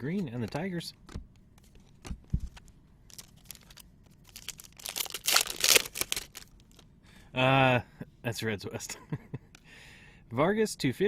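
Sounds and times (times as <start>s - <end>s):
foil wrapper tearing and crinkling: 3.1s - 6.8s.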